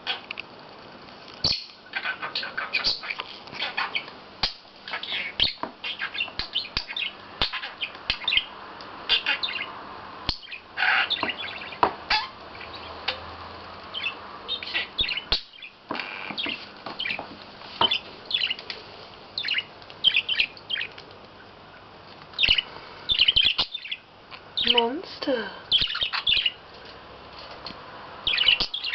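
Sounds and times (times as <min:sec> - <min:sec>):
budgerigar chattering and warbling: 0:01.5 - 0:08.5, 0:09.1 - 0:09.7, 0:10.3 - 0:13.2, 0:14.0 - 0:17.2.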